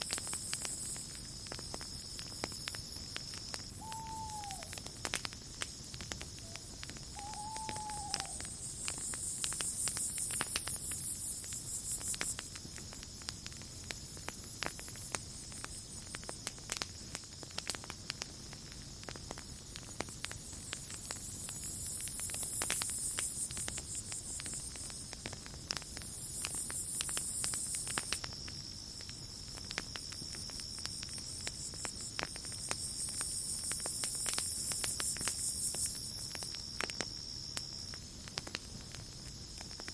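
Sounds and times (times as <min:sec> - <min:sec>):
campfire crackling and popping: 0:00.0 - 0:39.9
crickets chirring: 0:00.0 - 0:39.9
short bird call: 0:03.8 - 0:04.7.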